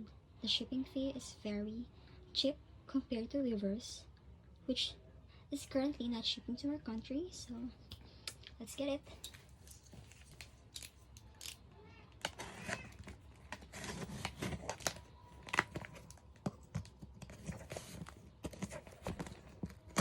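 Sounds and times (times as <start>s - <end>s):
packaging tearing and crinkling: 9.6s - 20.0s.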